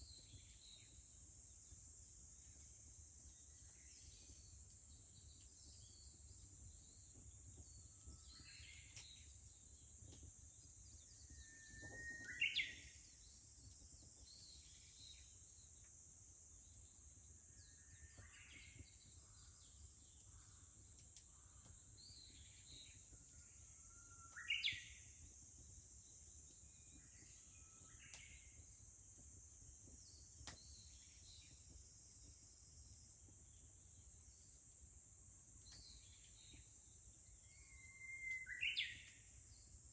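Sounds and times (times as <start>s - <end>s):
insects droning: 0.0s - 39.9s
faint bird chirps: 3.3s - 15.9s, 16.6s - 25.3s, 26.4s - 28.8s, 35.6s - 39.8s
bird singing whistled notes: 10.8s - 13.3s, 17.5s - 19.5s, 22.0s - 25.1s, 35.6s - 39.7s.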